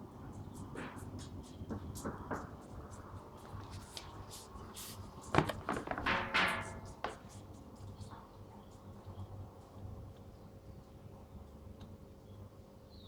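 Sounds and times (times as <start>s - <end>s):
knock: 5.4s - 7.2s.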